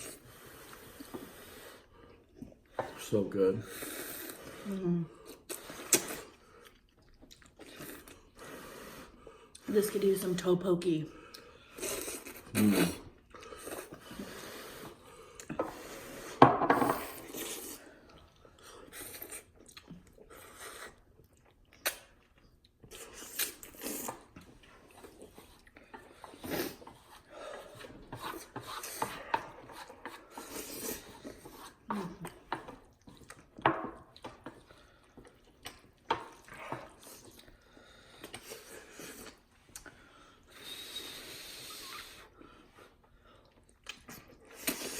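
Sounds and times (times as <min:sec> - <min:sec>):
open-mouthed chewing: 0:00.0 - 0:09.7, 0:11.1 - 0:16.4, 0:17.0 - 0:44.9
slurping noodles: 0:00.0 - 0:09.7, 0:11.3 - 0:33.4, 0:34.0 - 0:44.9
short vocal noises: 0:12.5 - 0:13.1.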